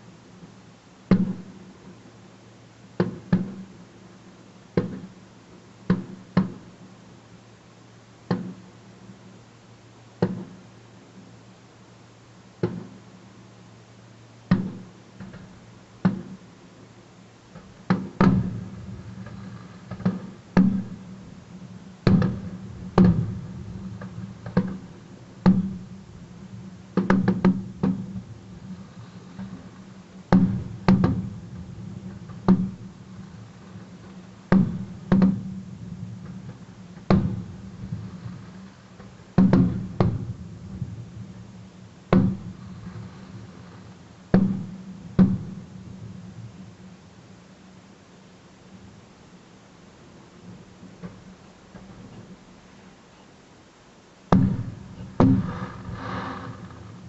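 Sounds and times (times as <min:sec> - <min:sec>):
fireworks bursting: 0:17.6 - 0:46.2, 0:54.3 - 0:57.0.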